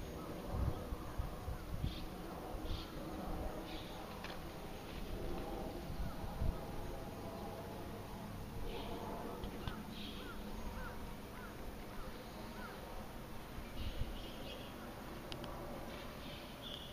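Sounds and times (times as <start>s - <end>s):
low background hum: 0.0s - 16.9s
bird calls: 3.6s - 4.2s, 8.7s - 12.9s, 13.6s - 15.1s, 15.9s - 16.9s.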